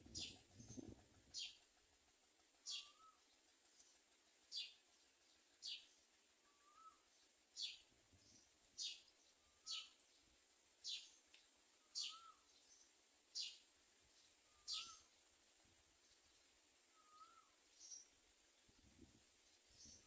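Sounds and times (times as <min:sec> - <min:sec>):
bird high downward call: 0:02.7 - 0:03.2, 0:06.5 - 0:07.8, 0:11.8 - 0:12.5, 0:14.5 - 0:15.1, 0:16.9 - 0:17.6.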